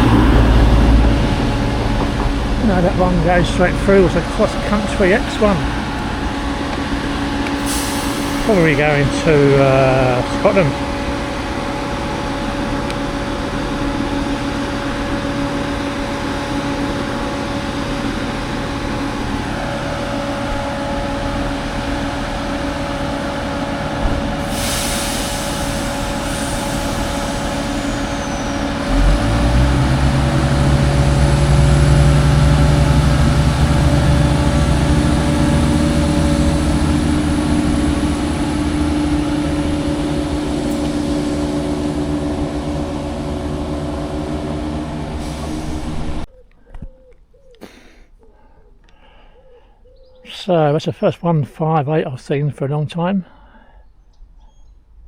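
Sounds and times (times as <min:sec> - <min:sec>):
diesel train rumbling past: 0:00.0 - 0:46.5
diesel train engine drone: 0:00.0 - 0:50.9
air hiss: 0:07.5 - 0:10.4, 0:24.4 - 0:29.0.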